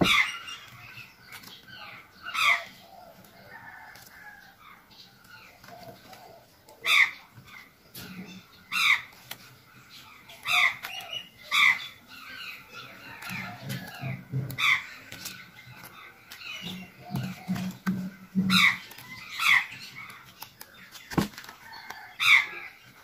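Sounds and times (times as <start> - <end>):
bird calling: 0.0 - 23.0.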